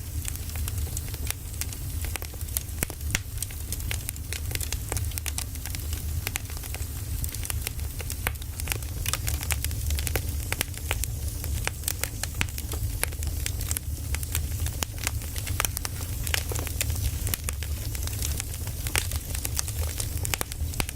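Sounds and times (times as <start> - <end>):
firewood crackling: 0.0 - 20.9
low rumble of fire: 0.0 - 20.9.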